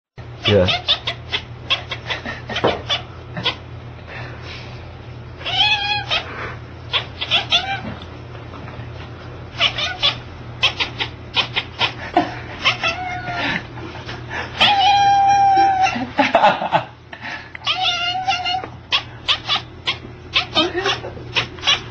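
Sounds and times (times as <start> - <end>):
cat meowing: 0.4 - 2.1, 5.4 - 6.3, 6.9 - 7.9, 9.6 - 11.9, 12.6 - 13.4, 14.6 - 16.0, 17.6 - 21.9
cat chattering: 0.4 - 3.7, 5.4 - 7.9, 9.6 - 13.4, 14.6 - 16.0, 17.6 - 21.9.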